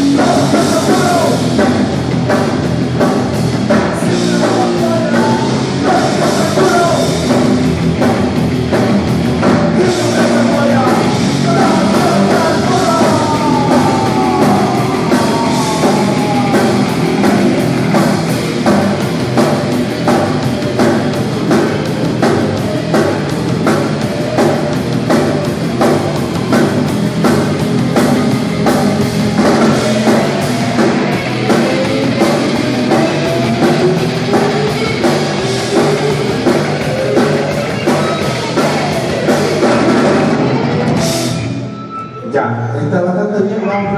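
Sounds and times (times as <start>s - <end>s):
punk rock band playing live: 0.0s - 42.2s.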